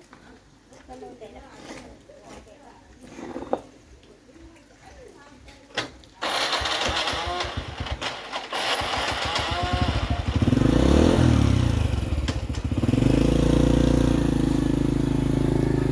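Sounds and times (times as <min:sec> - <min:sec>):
motorbike engine running: 0:06.2 - 0:15.9.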